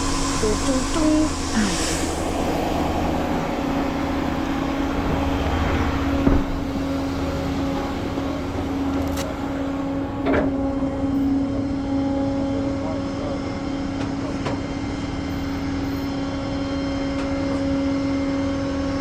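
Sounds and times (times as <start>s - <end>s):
truck engine idling: 0.0s - 11.6s.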